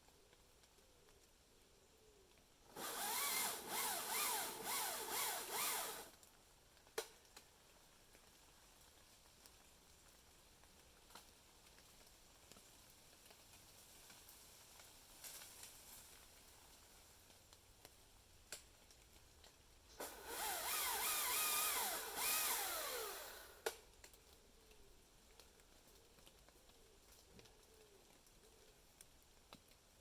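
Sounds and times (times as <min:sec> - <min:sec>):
chainsaw revving: 0:02.7 - 0:06.1, 0:20.0 - 0:23.7.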